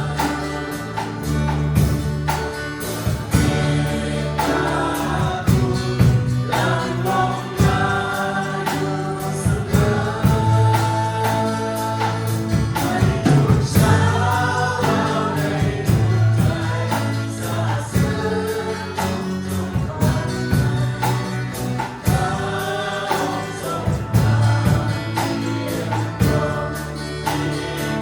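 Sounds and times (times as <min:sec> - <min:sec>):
band accompaniment: 0:00.0 - 0:28.0
group singing worship song: 0:00.0 - 0:28.0.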